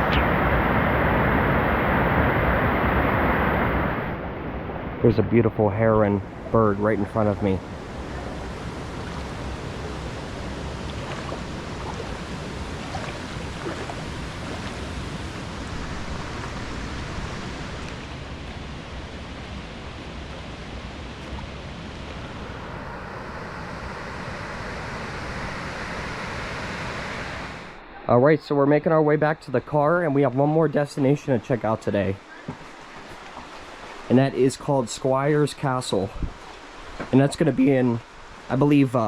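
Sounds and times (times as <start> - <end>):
river water flowing over rocks: 6.0 - 27.8, 30.2 - 39.0.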